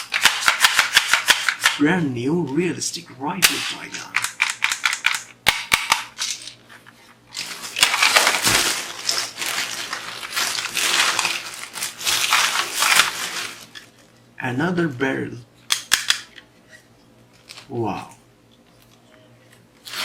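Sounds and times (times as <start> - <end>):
wrapping crinkling and rustling: 6.5 - 14.2, 17.3 - 17.8, 18.7 - 20.0.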